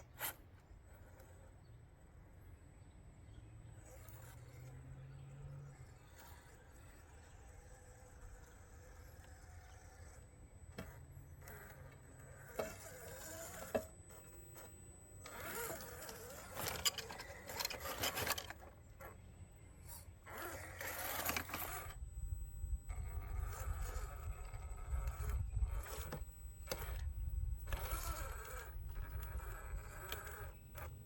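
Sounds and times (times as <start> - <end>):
scraping and crunching: 10.0 - 19.2, 19.8 - 22.1, 22.8 - 31.0.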